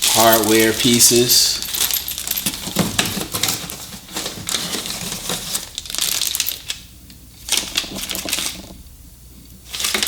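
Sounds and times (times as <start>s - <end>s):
plastic bags crinkling: 0.0s - 8.8s
metal hardware clinking: 0.2s - 3.8s.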